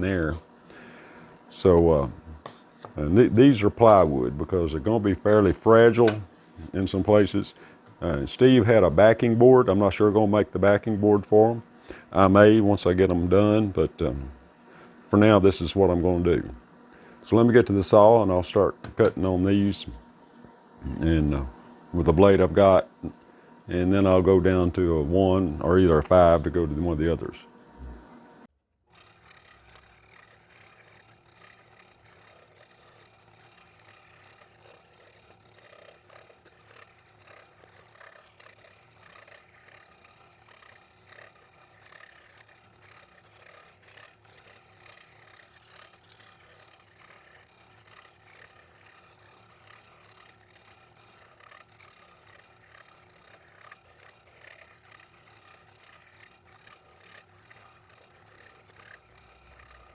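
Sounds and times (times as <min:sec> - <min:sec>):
scroll saw blade rattling: 0:05.3 - 0:07.2, 0:28.9 - 0:59.9.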